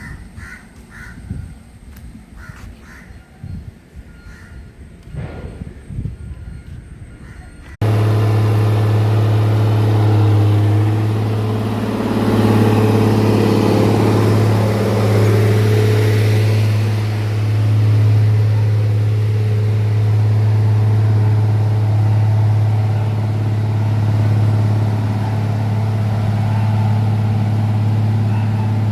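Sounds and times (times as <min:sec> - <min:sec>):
engine humming: 0:07.6 - 0:28.9.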